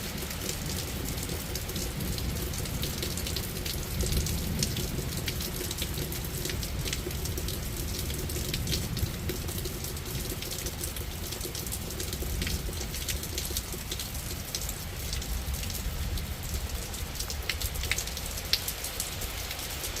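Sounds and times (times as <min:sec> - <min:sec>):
rain falling steadily: 0:00.0 - 0:20.0
raindrops ticking on a surface: 0:00.0 - 0:20.0.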